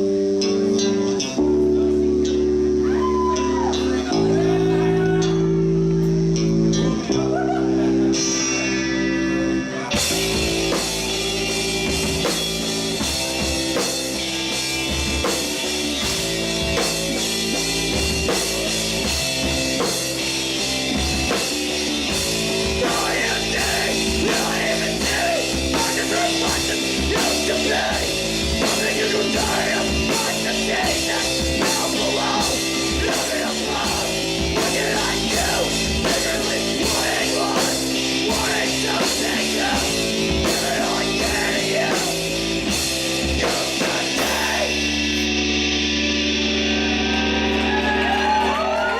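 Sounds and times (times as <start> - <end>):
rock band playing: 0.0 - 48.9
person singing: 22.8 - 42.4, 43.2 - 45.3.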